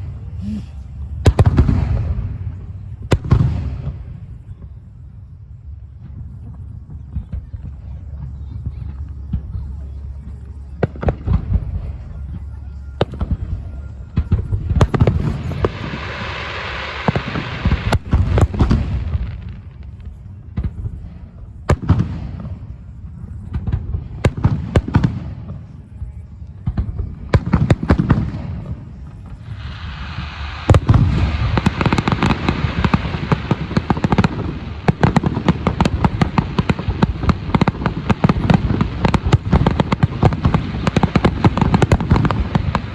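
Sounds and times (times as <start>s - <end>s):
fireworks crackling: 0.0s - 4.5s, 13.0s - 42.9s
fireworks bangs: 1.2s - 4.4s, 13.0s - 25.7s, 26.6s - 42.9s.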